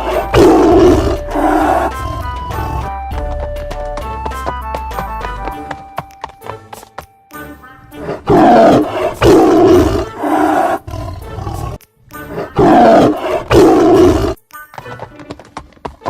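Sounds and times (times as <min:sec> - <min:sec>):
cartoon animal roaring: 0:00.0 - 0:02.8, 0:08.0 - 0:14.4
background music: 0:00.0 - 0:16.0.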